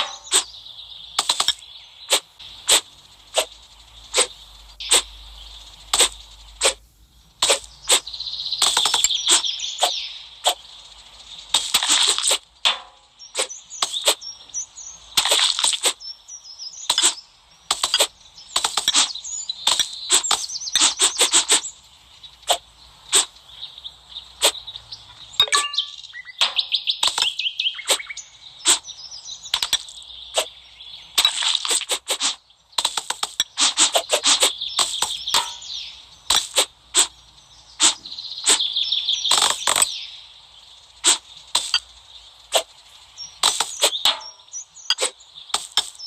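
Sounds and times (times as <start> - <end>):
sharp slicing and crunching: 0.0 - 0.5, 1.2 - 5.1, 5.9 - 6.8, 7.4 - 10.6, 11.5 - 12.5, 15.2 - 16.0, 16.9 - 21.7, 22.5 - 23.3, 24.4 - 24.6, 26.4 - 28.9, 31.2 - 35.7, 36.3 - 37.2, 37.8 - 38.7, 41.0 - 41.8, 42.5 - 42.8, 43.4 - 44.2, 44.9 - 46.0
crackling hiss: 0.0 - 46.0.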